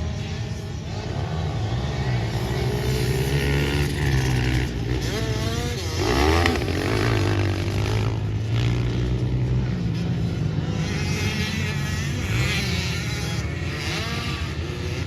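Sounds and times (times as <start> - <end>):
pit bike engines revving: 0.0 - 15.0.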